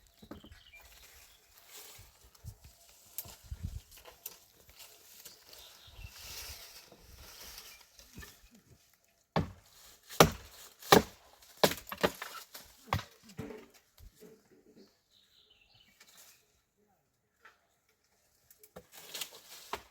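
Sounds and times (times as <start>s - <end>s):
faint rustling: 0.6s - 9.0s.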